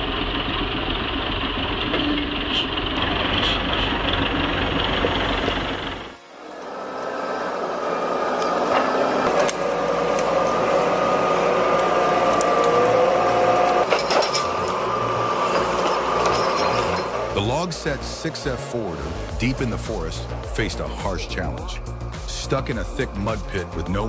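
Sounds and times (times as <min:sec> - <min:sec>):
heavy machine whining: 0:00.0 - 0:24.0
clinks and knocks: 0:11.7 - 0:17.4.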